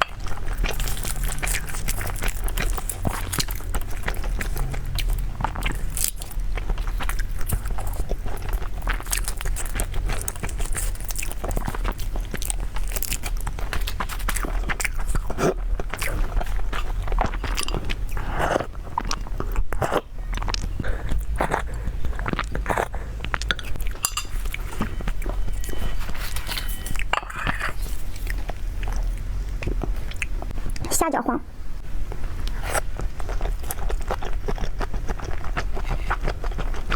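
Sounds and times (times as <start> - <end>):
wet chewing: 0.0 - 30.9, 32.4 - 36.9.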